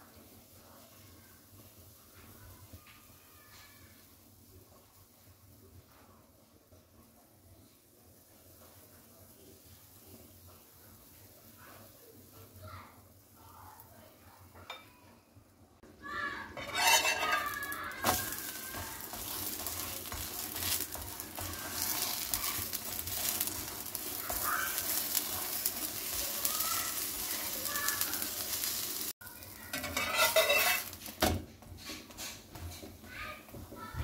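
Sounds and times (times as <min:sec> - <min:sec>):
batter sizzling in a frying pan: 0:00.0 - 0:15.3, 0:15.9 - 0:34.0
metal spatula scraping a pan: 0:16.5 - 0:26.2, 0:29.7 - 0:31.2.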